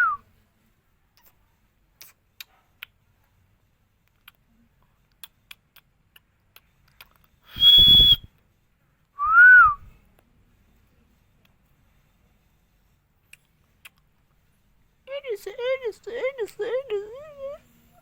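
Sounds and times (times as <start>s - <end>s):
parrot whistle: 7.5s - 8.3s.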